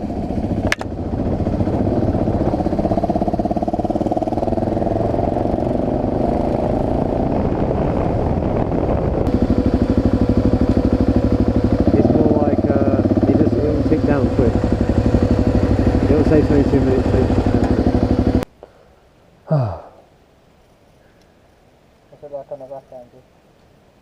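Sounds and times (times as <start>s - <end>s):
motorcycle engine running: 0.0s - 18.4s.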